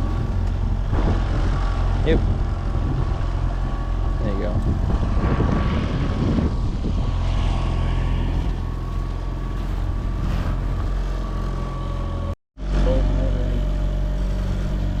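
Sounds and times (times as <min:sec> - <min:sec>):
rushing noise: 0:00.0 - 0:11.8
outboard motor running: 0:00.0 - 0:15.0.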